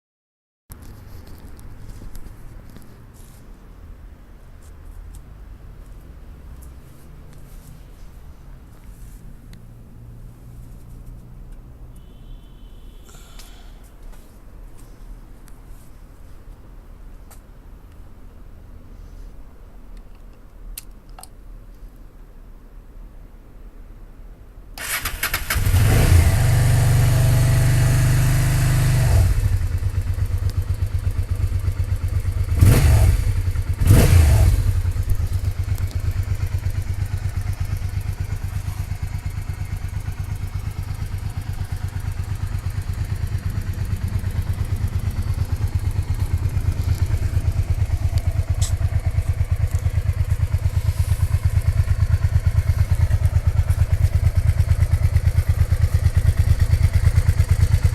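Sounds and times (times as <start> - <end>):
engine revving: 24.8 - 29.8, 32.4 - 35.0
motorcycle engine starting and idling: 24.8 - 57.9.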